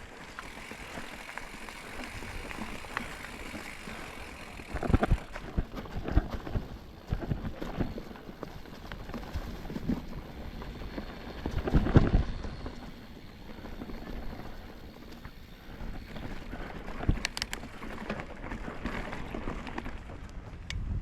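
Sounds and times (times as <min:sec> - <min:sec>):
bike rattling: 0:00.0 - 0:20.7
bike tyres on dirt and rock: 0:00.0 - 0:21.0
wind rumble on microphone: 0:04.6 - 0:15.2, 0:15.8 - 0:21.0.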